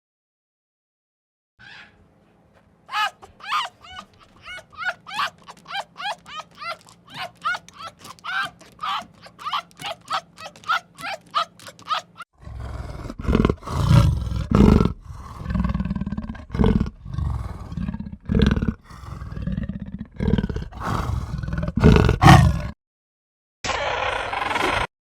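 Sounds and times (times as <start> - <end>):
quick high yelping calls: 2.9 - 12.2
large animal growling and roaring: 12.4 - 22.8.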